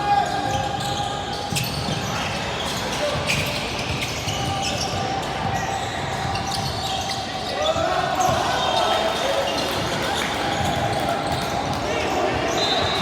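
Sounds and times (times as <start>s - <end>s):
babble of voices in gym: 0.0s - 13.0s.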